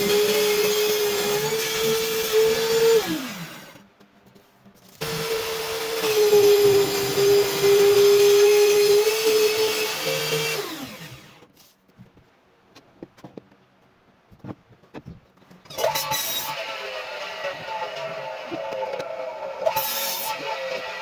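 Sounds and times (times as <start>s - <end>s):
table saw motor whining: 15.7s - 21.0s.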